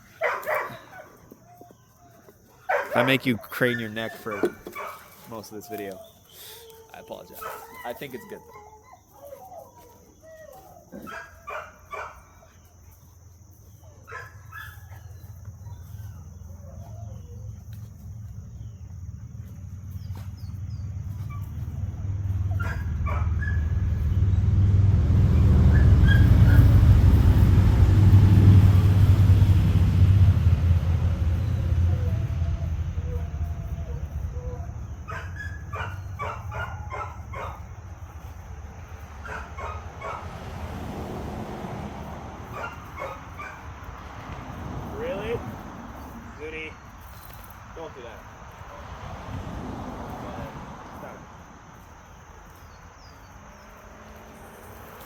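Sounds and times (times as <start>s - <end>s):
dogs barking: 0.0s - 24.3s, 25.4s - 28.0s, 30.8s - 40.6s, 42.0s - 46.7s
engine rumble passing by: 15.0s - 55.0s.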